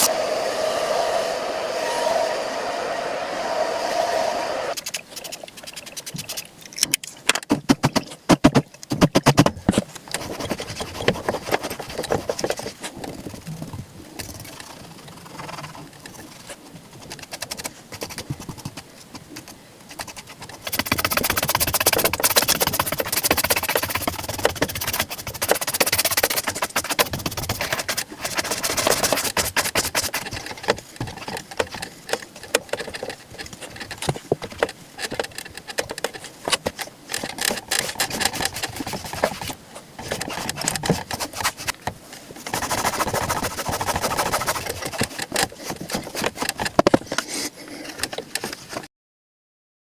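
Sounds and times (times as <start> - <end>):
brisk brushing strokes: 10.0 - 13.4, 14.4 - 34.0, 37.5 - 46.5
scratchy rubbing on leather: 10.2 - 13.0, 19.3 - 30.6, 37.7 - 41.8, 42.5 - 46.5.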